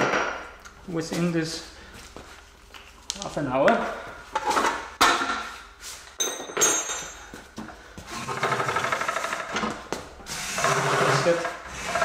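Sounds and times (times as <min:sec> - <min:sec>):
metal tools knocking: 0:06.2 - 0:07.3
metallic clink: 0:06.2 - 0:07.3.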